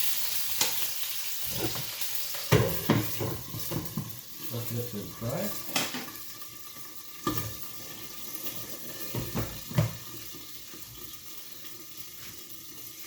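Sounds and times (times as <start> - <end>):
dishes knocking: 2.5 - 4.1, 9.1 - 10.0
tap running into sink: 2.5 - 4.2, 5.7 - 6.2, 9.0 - 10.2.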